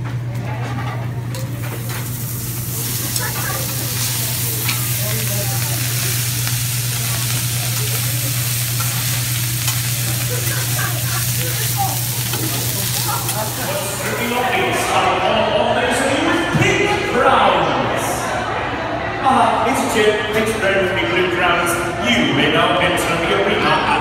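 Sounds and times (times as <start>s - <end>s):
food sizzling on griddle: 1.6s - 14.6s.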